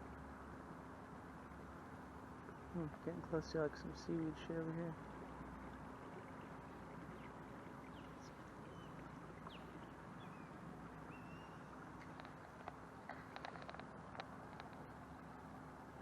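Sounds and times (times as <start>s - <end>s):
boat motor humming: 0.0s - 16.0s
faint bird chirps: 7.1s - 12.2s.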